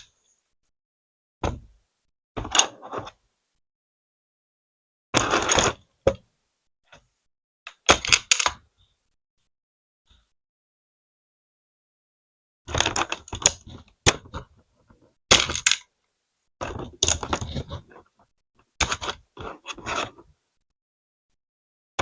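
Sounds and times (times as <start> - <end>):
plastic pieces clattering: 15.3 - 15.9.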